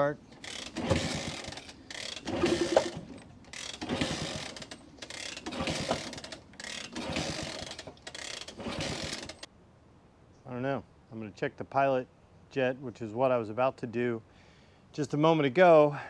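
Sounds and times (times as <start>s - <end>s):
motorcycle kick-start clatter: 0.0s - 9.5s.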